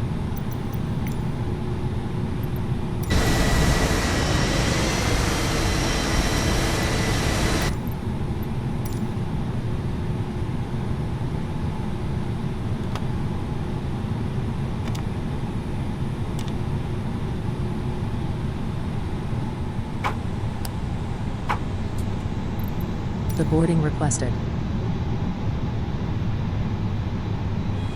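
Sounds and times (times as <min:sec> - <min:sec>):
sharp clicks: 0:02.4 - 0:08.0
low rumble of cabin air: 0:03.0 - 0:08.0
jet engine whine: 0:03.0 - 0:08.1.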